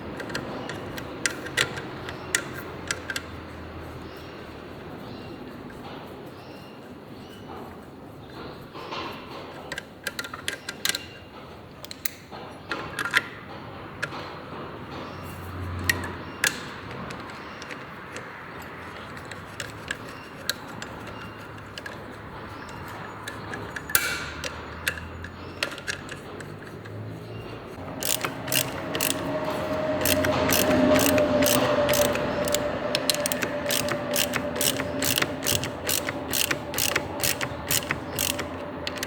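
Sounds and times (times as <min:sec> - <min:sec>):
metallic taps of hand tools: 0:22.6 - 0:27.0.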